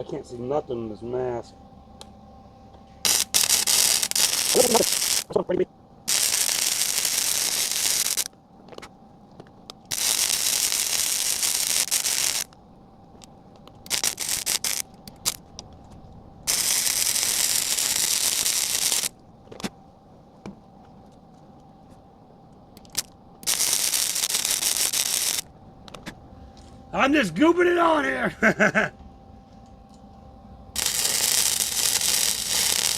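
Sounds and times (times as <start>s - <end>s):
welding arc crackling and hissing: 3.0s - 19.8s, 22.7s - 28.2s, 30.7s - 32.9s.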